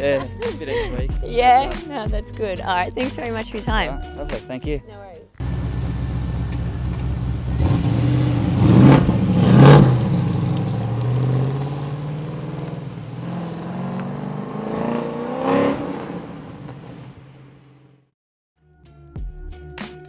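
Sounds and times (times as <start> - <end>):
car engine revving: 5.4 - 17.7.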